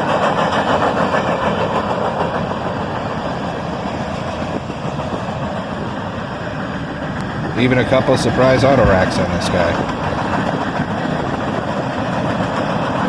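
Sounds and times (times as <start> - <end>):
train cars rumbling on rails: 0.0 - 13.0.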